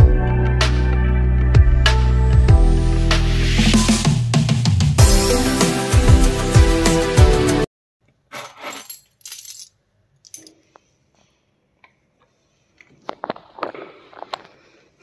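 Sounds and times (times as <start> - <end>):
background music: 0.0 - 7.7
light metallic clicks and clinks: 8.7 - 10.8.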